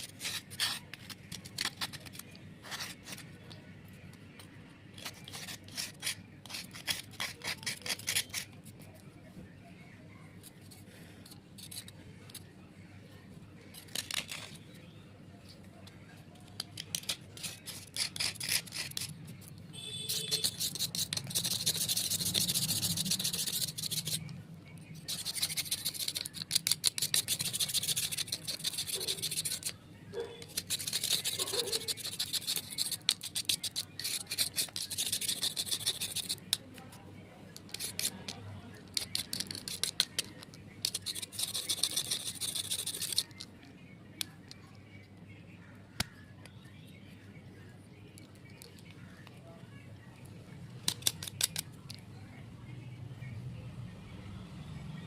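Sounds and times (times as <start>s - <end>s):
clay scraped off slate: 0.0s - 3.3s, 5.0s - 8.8s, 16.6s - 24.3s, 25.0s - 29.8s, 30.4s - 36.6s, 37.6s - 43.5s, 50.9s - 51.7s.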